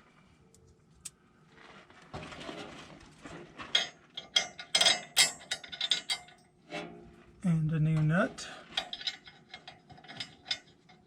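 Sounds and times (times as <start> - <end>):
steel washers clinking: 3.8 - 6.5, 8.7 - 11.0.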